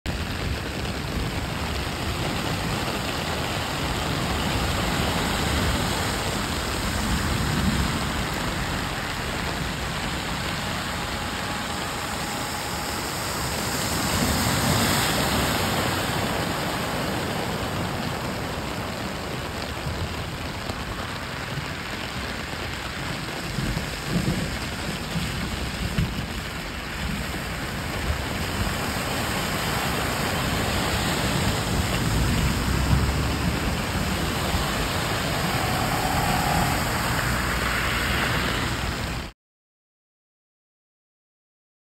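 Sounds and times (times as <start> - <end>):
steady rain: 0.1 - 39.4
cars driving through water: 0.2 - 25.8, 26.4 - 39.3.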